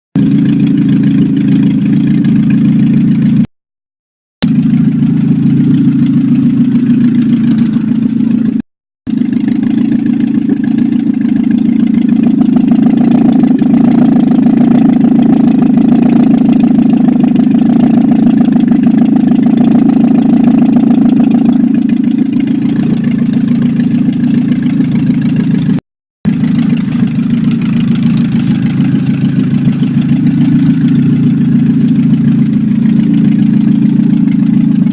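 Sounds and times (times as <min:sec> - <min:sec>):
car engine idling: 0:00.2 - 0:03.5, 0:04.4 - 0:34.9.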